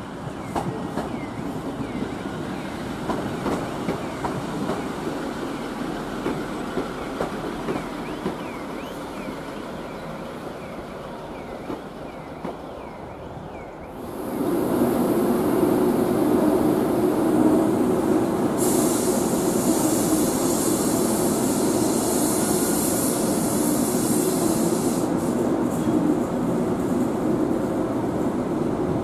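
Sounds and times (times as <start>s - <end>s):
train wheels clicking over joints: 0.3s - 2.2s, 2.9s - 5.1s, 6.1s - 9.3s.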